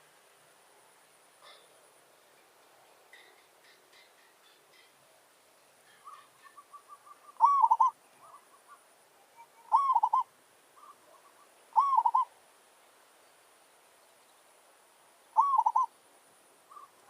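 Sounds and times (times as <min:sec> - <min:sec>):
dove cooing: 0:01.4 - 0:01.7, 0:06.0 - 0:12.3, 0:15.4 - 0:15.9, 0:16.7 - 0:17.0.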